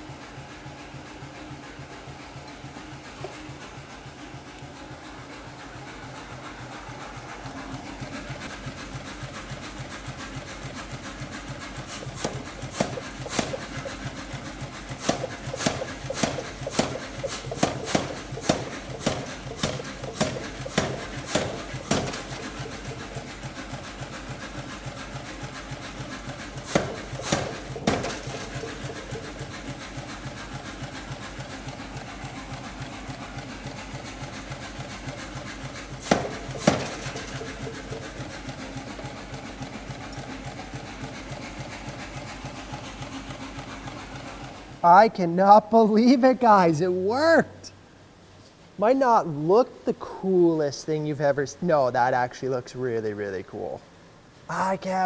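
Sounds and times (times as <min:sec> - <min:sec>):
power hammer beating: 0:11.9 - 0:24.4, 0:26.2 - 0:31.0, 0:35.2 - 0:40.2
sharp metal strikes: 0:15.0 - 0:23.0, 0:26.7 - 0:29.3.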